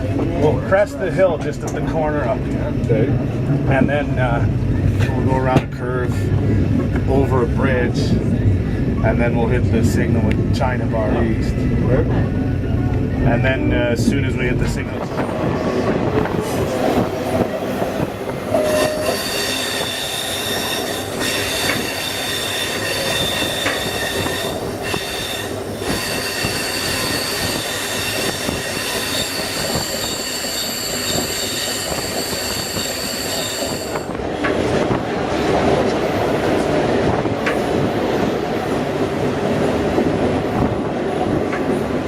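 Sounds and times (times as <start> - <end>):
train running noise: 0.0 - 42.0
train wheels squealing: 18.5 - 34.1.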